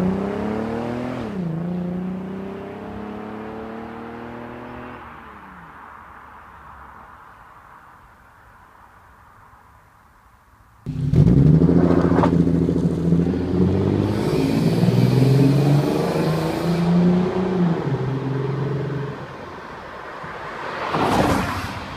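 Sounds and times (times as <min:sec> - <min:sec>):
car engine starting and revving: 0:00.0 - 0:05.2, 0:10.9 - 0:19.4.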